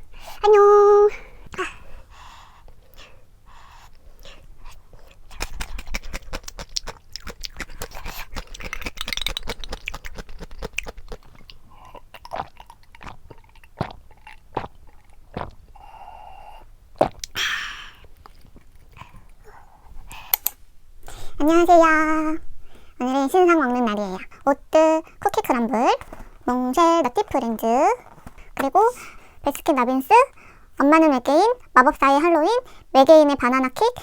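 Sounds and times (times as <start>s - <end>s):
person chewing and crunching food: 3.8s - 16.0s, 17.0s - 17.4s, 18.0s - 20.5s, 28.0s - 28.6s
sharp clicks: 20.3s - 20.6s.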